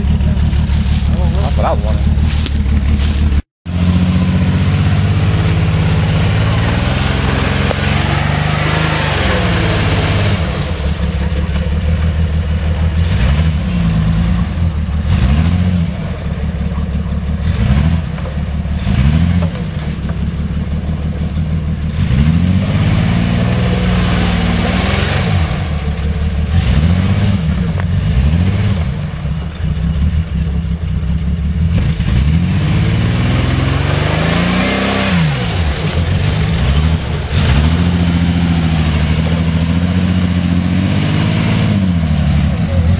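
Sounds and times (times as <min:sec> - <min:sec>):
vehicle engine revving: 0:00.0 - 0:42.9.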